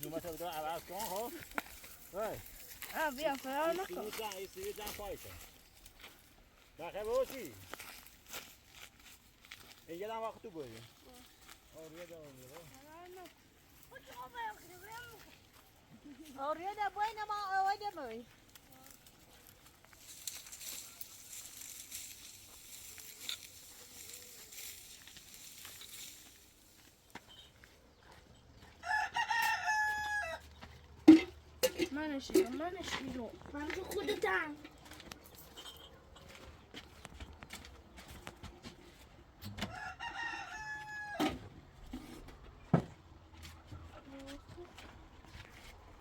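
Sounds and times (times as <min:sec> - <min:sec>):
dry rustling and crackling: 0:00.0 - 0:27.4
rooster crowing: 0:28.7 - 0:30.6, 0:39.6 - 0:41.4.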